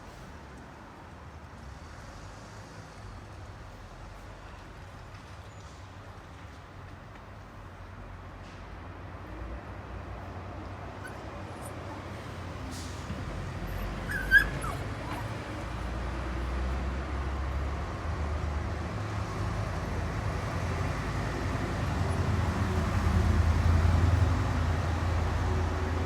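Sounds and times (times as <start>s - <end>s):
puppy yipping: 11.0s - 12.1s, 13.5s - 15.9s.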